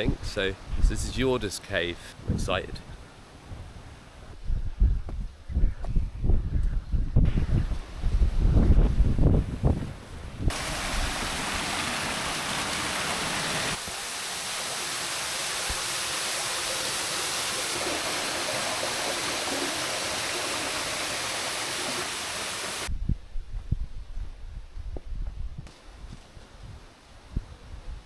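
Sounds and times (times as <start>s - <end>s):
waterfall rushing: 10.5s - 22.9s.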